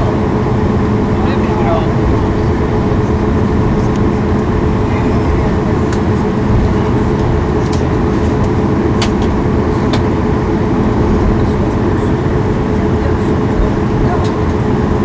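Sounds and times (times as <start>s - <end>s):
airplane engine and cabin rumble: 0.0s - 15.0s.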